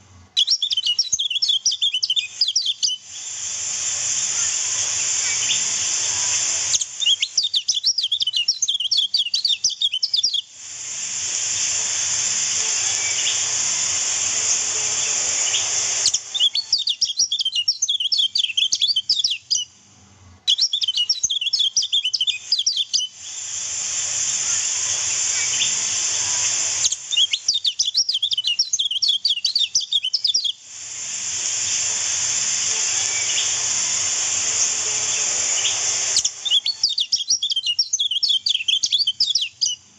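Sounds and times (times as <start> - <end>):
birds twittering: 0.4 - 3.0, 12.6 - 13.5, 32.9 - 33.7, 34.3 - 39.8.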